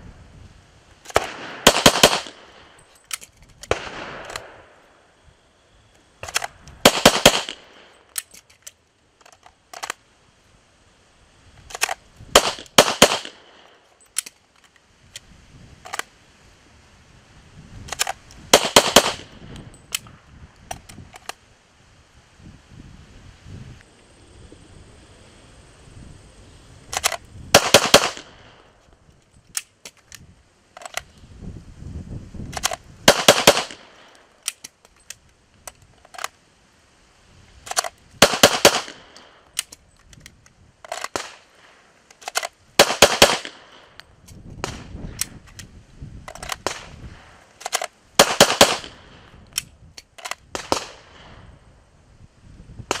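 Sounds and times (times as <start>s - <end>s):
pistol shots: 1.1s - 2.7s, 3.7s - 4.8s, 6.3s - 7.9s, 12.4s - 13.6s, 18.5s - 19.3s, 27.6s - 28.5s, 33.1s - 34.1s, 38.2s - 39.3s, 42.8s - 43.9s, 48.2s - 49.2s.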